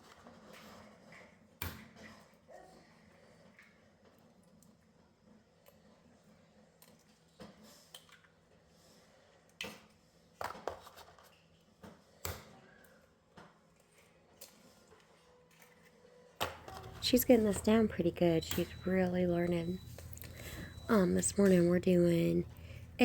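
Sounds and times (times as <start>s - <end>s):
faint steady hum: 16.6s - 23.0s.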